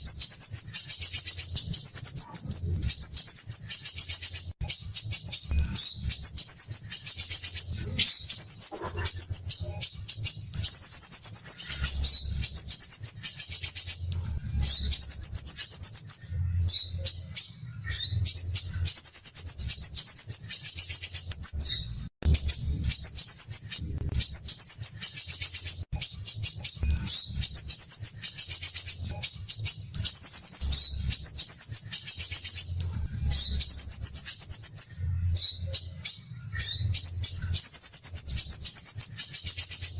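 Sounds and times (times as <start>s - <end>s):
bird singing harsh trill: 0.0s - 39.9s
faint low rumble: 21.6s - 24.8s.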